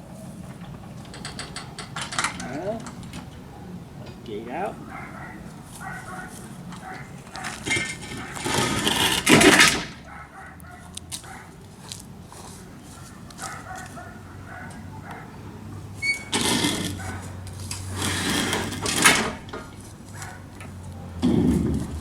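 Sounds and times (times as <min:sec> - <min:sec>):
metal rattling and clanking: 0:00.4 - 0:04.3, 0:05.1 - 0:10.5, 0:15.9 - 0:22.0.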